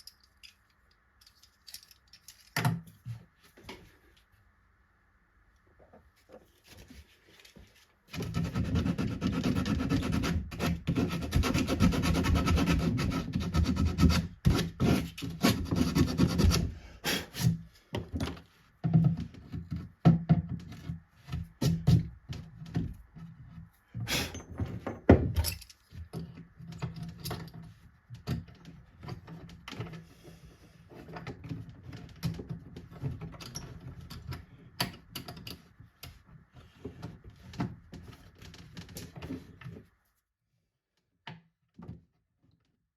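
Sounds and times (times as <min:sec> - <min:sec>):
rubbing and scraping on wood: 0:05.9 - 0:25.1, 0:35.6 - 0:40.0.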